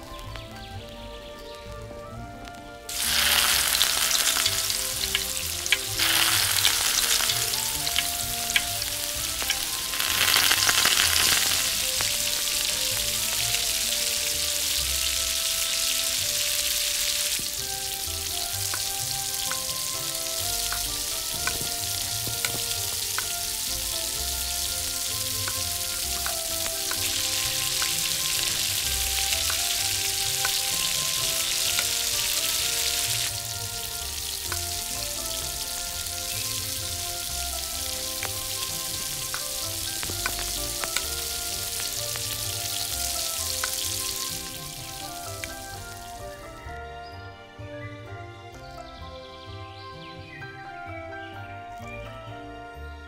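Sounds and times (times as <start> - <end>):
hot oil sizzling: 2.9 - 46.6.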